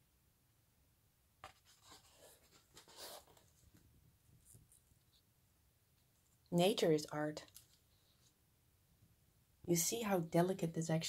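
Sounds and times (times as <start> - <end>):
page rustling and turning: 1.4 - 4.8.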